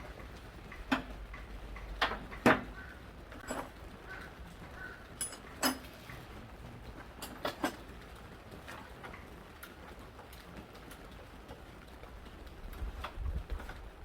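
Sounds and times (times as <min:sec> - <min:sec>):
tools clicking and knocking: 0:00.7 - 0:02.8, 0:03.4 - 0:03.8, 0:05.2 - 0:06.2, 0:07.2 - 0:07.9.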